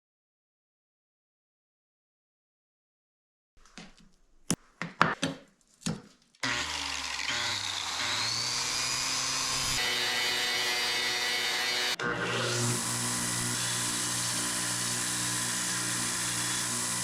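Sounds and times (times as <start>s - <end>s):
grinder running on metal: 6.4s - 17.0s.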